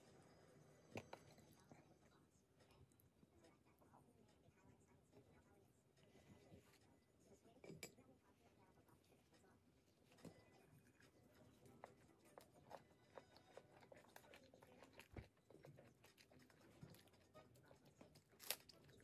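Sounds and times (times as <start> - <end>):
close-up chewing: 9.9 - 19.0.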